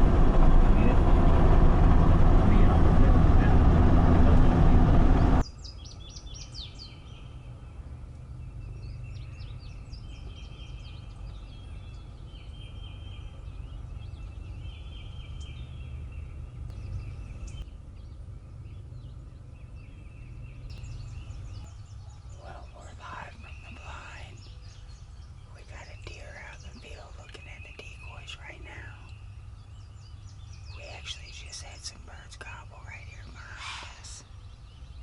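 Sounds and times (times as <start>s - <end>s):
vehicle cabin noise: 0.0s - 5.4s
songbird singing: 0.0s - 35.0s
steady low rumble: 0.0s - 35.0s.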